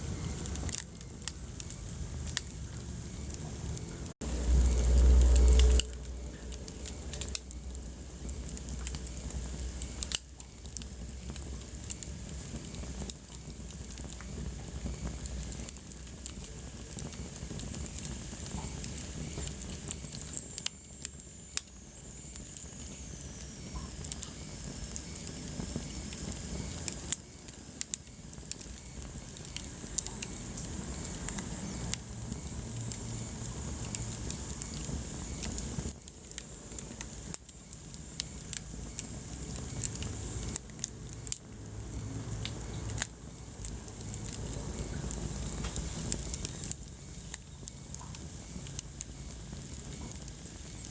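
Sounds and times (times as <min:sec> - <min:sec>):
low rumble: 0:00.0 - 0:10.2
wood fire crackling and popping: 0:00.0 - 0:50.9.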